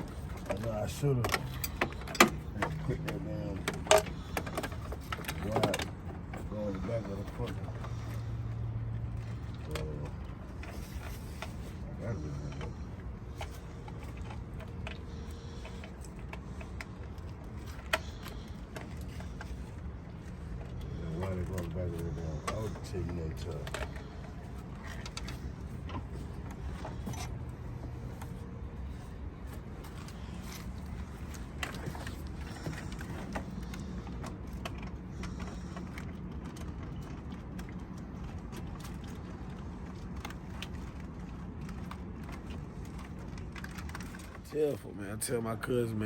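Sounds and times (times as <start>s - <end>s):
low mechanical hum: 0.0s - 46.0s
steady low rumble: 0.0s - 46.0s.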